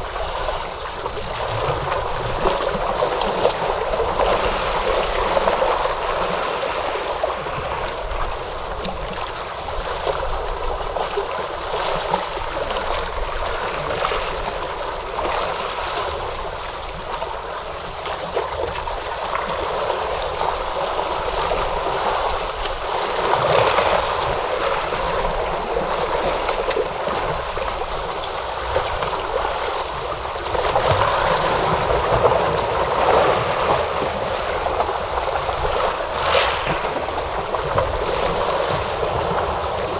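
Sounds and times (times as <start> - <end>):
ocean surf washing in: 19.0 - 39.9.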